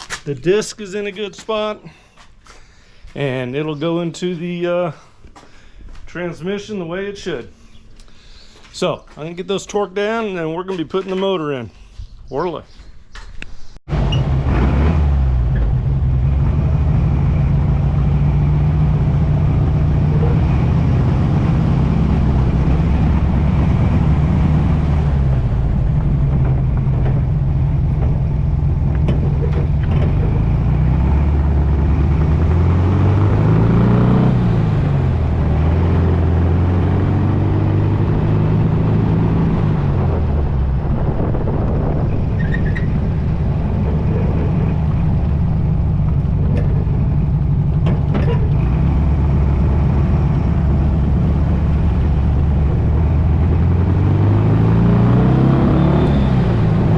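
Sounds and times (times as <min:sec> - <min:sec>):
engine revving: 0:13.9 - 0:56.9.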